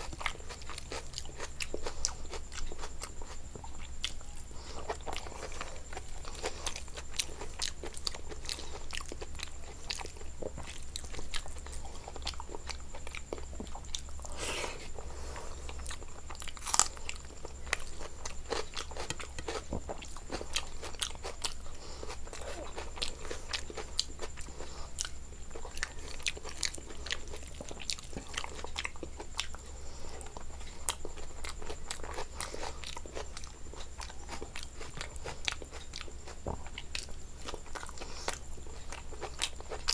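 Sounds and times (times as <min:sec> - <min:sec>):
crunchy chewing: 0:00.0 - 0:39.9
low electrical hum: 0:00.0 - 0:39.9.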